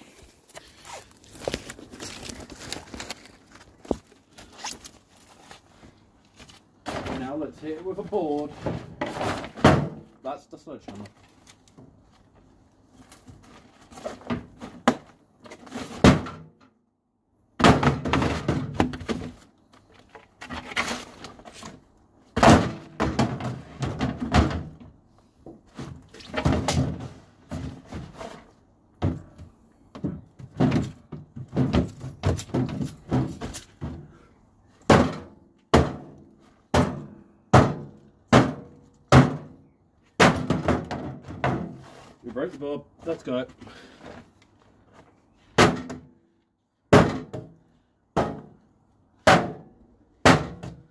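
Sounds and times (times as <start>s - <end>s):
wooden plank hitting metal casing: 17.6s - 19.3s, 22.4s - 24.8s, 34.9s - 39.6s, 40.2s - 41.8s, 46.9s - 47.6s, 48.2s - 48.6s.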